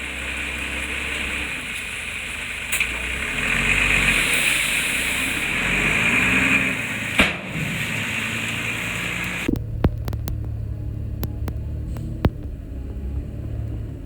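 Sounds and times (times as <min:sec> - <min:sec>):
heavy machinery diesel engine: 0:00.0 - 0:14.0
sharp knock: 0:07.2 - 0:07.7.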